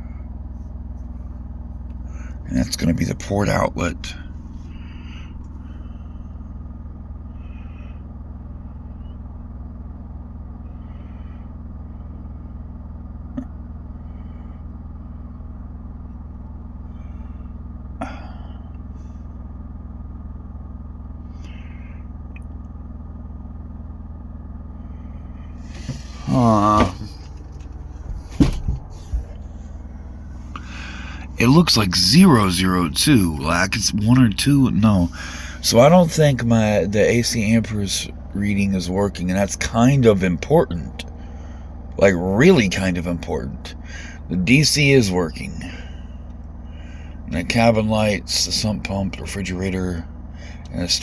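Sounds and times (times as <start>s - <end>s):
fan heater humming: 0.0s - 51.0s.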